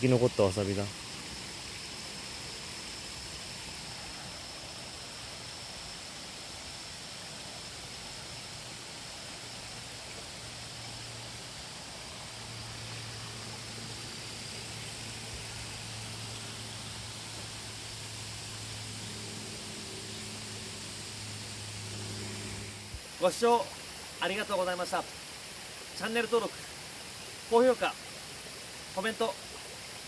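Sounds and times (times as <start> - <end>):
water rushing in a stream: 0.0 - 30.0.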